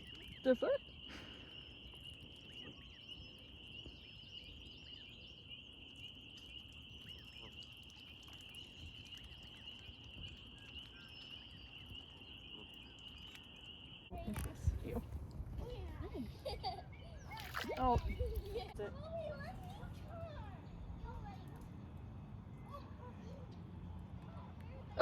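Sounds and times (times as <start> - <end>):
high-pitched animal chorus: 0.0 - 14.9
faint bird chirps: 0.0 - 25.0.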